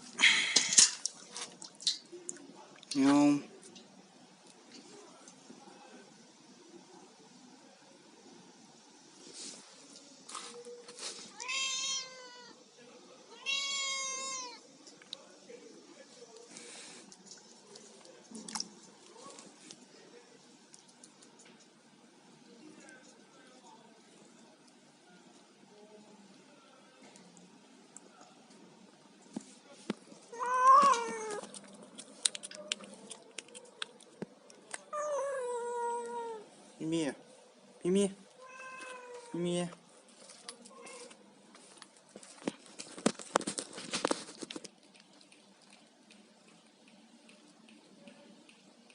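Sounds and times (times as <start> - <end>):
cat meowing: 11.4 - 12.6, 13.3 - 14.6, 30.3 - 31.4, 34.9 - 36.4, 38.4 - 39.4.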